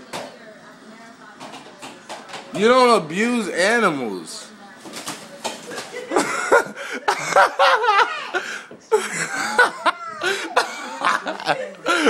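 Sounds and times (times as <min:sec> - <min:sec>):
people laughing: 0:05.7 - 0:12.0.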